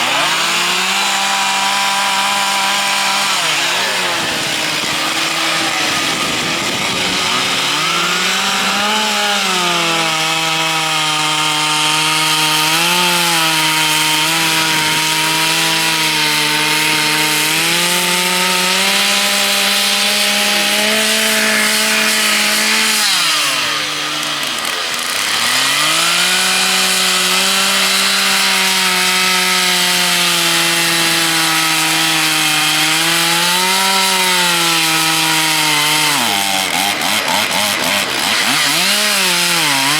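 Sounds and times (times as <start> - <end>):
chainsaws cutting a log: 0.0 - 39.9.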